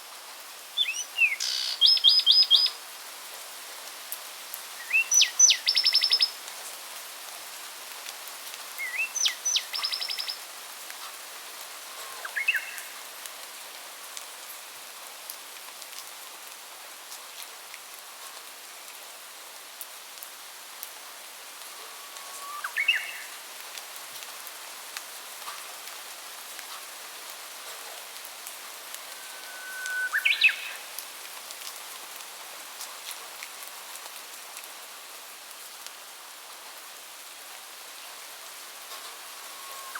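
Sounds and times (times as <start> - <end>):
steady background hiss: 0.0 - 39.9
songbirds singing: 0.8 - 2.7, 4.8 - 6.3, 8.8 - 10.4, 22.0 - 23.4, 28.9 - 30.9, 39.3 - 39.9.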